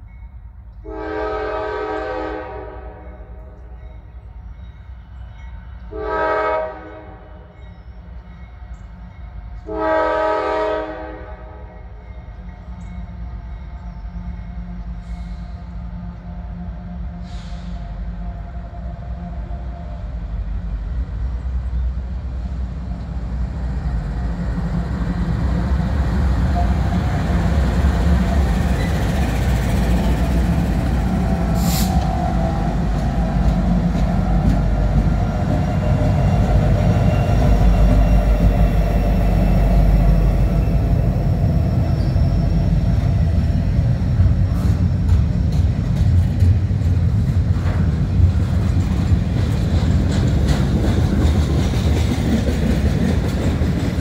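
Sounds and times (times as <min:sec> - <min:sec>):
diesel locomotive rumble: 0:00.0 - 0:54.0
wheels clicking over rail joints: 0:44.6 - 0:54.0.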